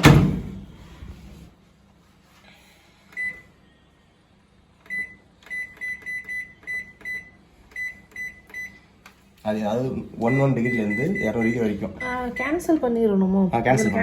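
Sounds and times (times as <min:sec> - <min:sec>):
microwave keypad beeps: 0:03.2 - 0:03.5, 0:04.8 - 0:08.8, 0:10.2 - 0:12.6, 0:13.8 - 0:14.0.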